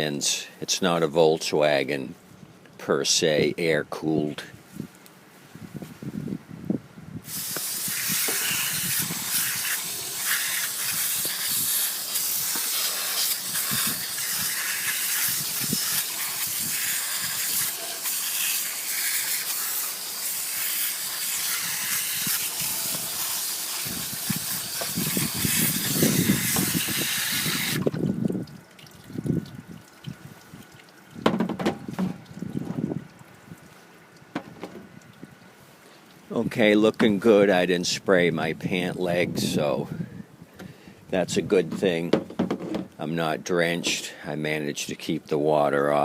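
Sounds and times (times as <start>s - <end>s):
hose water spraying: 7.2s - 28.4s.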